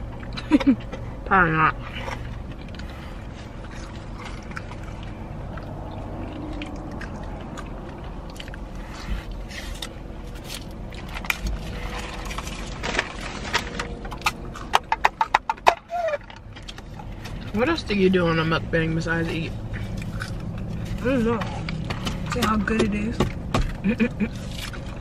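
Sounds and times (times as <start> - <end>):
steady low hum: 0.0 - 25.0
chewing and mouth clicks: 1.9 - 15.3, 19.6 - 22.6.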